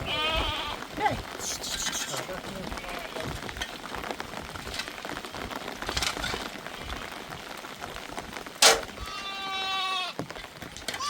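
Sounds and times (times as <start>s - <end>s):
animal bleating: 0.0s - 0.9s, 1.5s - 3.4s, 9.0s - 10.2s
light ticking and patter: 0.0s - 9.4s
sharp loud crack: 8.6s - 9.0s.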